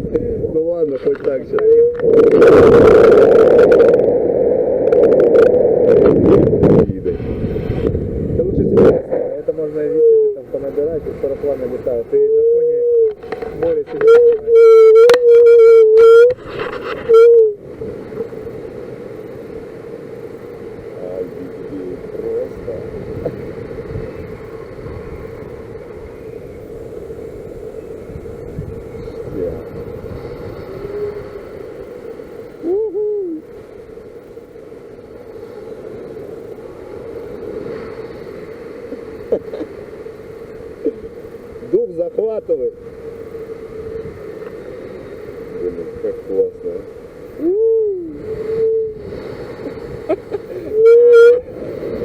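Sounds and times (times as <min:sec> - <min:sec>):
wind rushing: 0:00.0 - 0:39.3
loud motor drone: 0:01.5 - 0:33.3.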